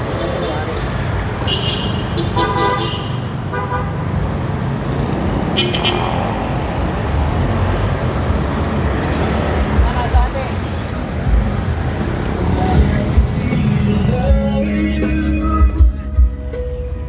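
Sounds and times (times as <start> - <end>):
vehicle engine and road rumble: 0.0 - 17.0
vehicle horn toots: 1.4 - 4.0.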